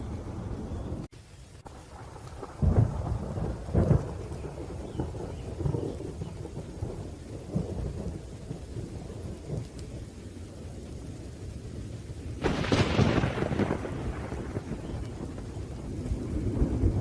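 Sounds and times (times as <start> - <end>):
low rolling thunder: 0.0 - 17.0
rain: 0.0 - 17.0
loud thunderclap: 1.7 - 9.9, 12.4 - 17.0.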